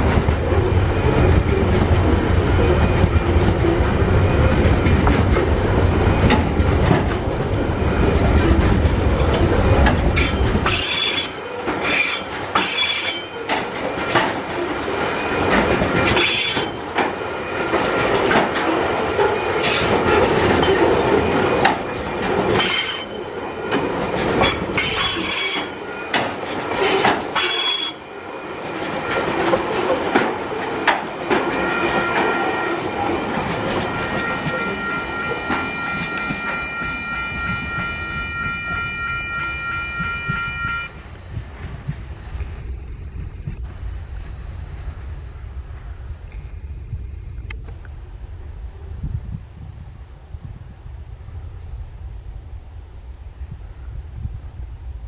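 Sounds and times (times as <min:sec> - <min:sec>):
rail clatter: 0:00.0 - 0:45.8
freight train rumble: 0:00.0 - 0:55.0
train wheels squealing: 0:07.6 - 0:14.3, 0:22.6 - 0:28.3, 0:31.5 - 0:46.1.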